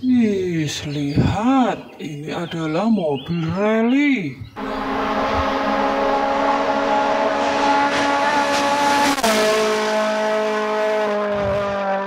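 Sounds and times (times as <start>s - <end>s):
rally car engine revving: 4.6s - 12.0s.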